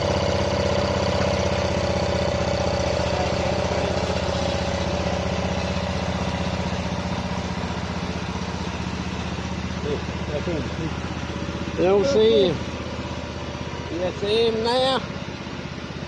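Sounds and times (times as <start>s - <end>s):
tractor engine idling: 0.0s - 16.0s.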